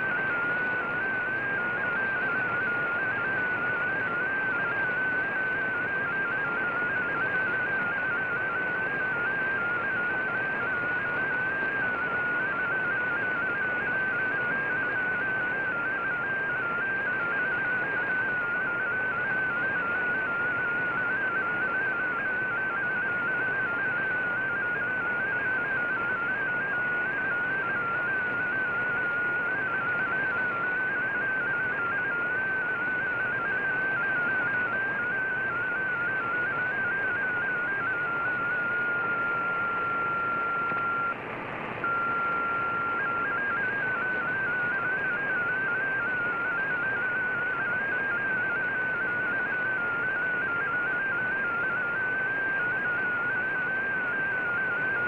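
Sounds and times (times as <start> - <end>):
radio receiver hiss: 36.0 - 46.2.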